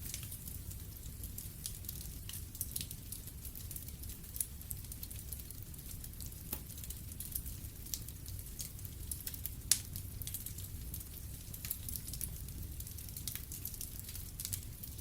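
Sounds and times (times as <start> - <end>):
fire crackling: 0.0 - 15.0.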